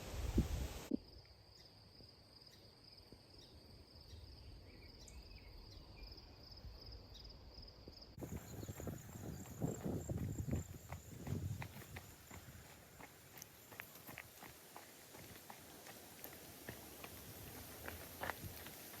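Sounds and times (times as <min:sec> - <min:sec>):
insects trilling: 0:05.6 - 0:15.6
footsteps on a trail: 0:08.2 - 0:19.0.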